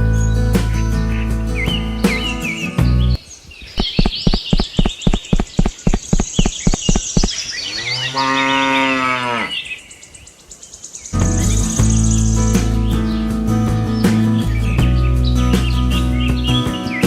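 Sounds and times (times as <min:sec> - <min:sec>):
sharp knocks: 0:03.8 - 0:07.3
cow mooing: 0:07.7 - 0:09.7.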